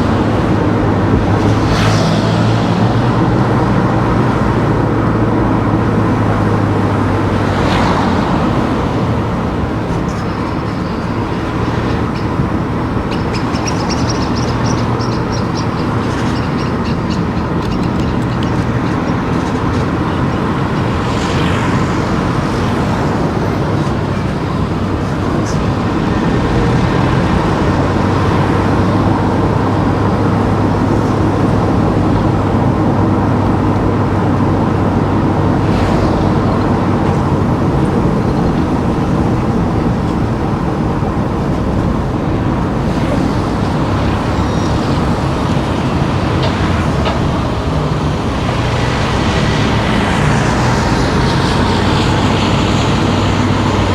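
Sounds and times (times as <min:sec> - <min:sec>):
car engine and tyre noise: 0:00.0 - 0:53.9.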